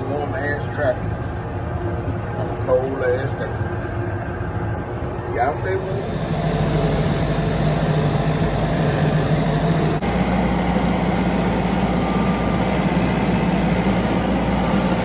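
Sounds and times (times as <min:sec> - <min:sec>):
tractor engine running: 0:05.8 - 0:15.0.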